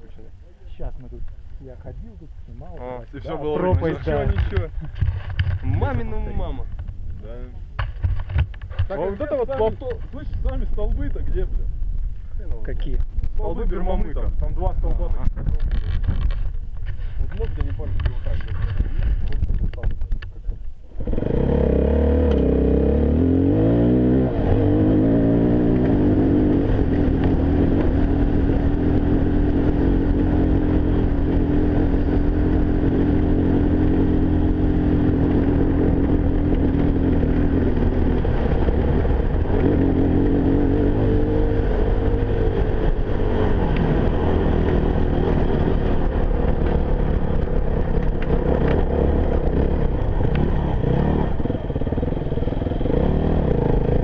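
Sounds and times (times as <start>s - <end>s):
motorcycle engine revving: 20.8s - 54.0s.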